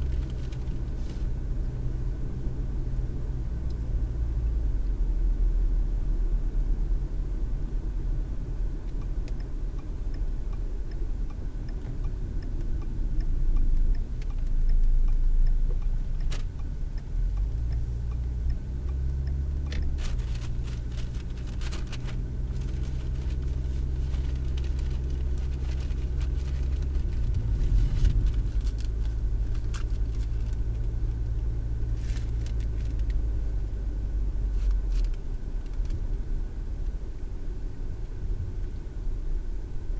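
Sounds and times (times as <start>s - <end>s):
engine and road noise rumble: 0.0s - 39.9s.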